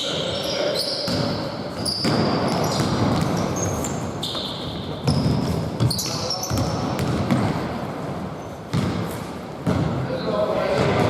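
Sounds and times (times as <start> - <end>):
sneakers squeaking on court: 0.0 - 7.7, 8.4 - 10.0
basketball bouncing: 1.1 - 7.8, 8.7 - 10.0.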